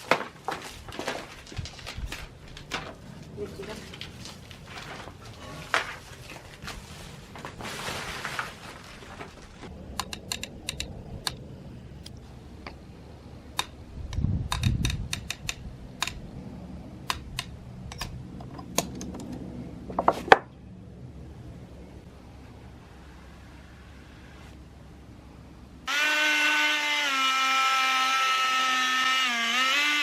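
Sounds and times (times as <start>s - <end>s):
rustle: 0.0s - 9.7s.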